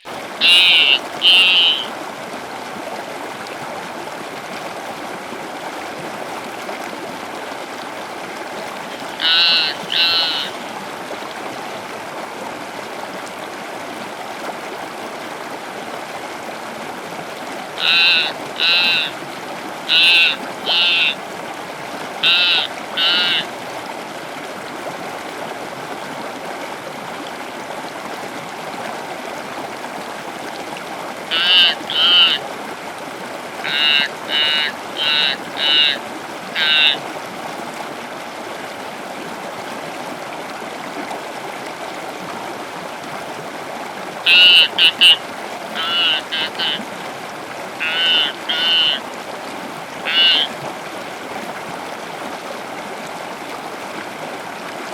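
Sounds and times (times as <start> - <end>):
short loud animal calls: 0.4 - 1.9, 8.9 - 10.6, 17.8 - 19.2, 19.9 - 21.2, 22.2 - 23.5, 31.3 - 32.4, 33.6 - 37.0, 44.3 - 45.2, 45.8 - 46.8, 47.8 - 49.0, 50.0 - 50.5.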